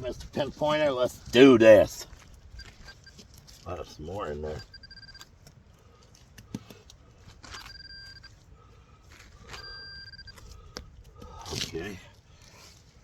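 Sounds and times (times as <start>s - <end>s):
metal detector beeping: 2.6s - 3.2s, 4.2s - 5.3s, 7.4s - 8.4s, 9.5s - 10.5s.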